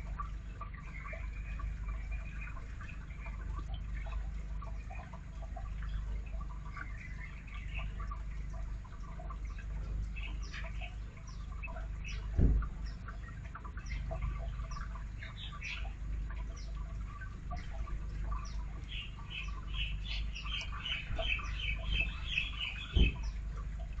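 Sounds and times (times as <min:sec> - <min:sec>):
brief thump: 0:12.4 - 0:12.7, 0:22.9 - 0:23.3
bird whistling and chirping: 0:19.0 - 0:23.4.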